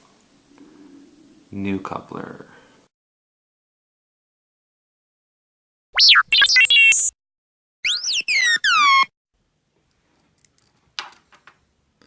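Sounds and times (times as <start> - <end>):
jumble of electronic tones: 7.9 - 9.1.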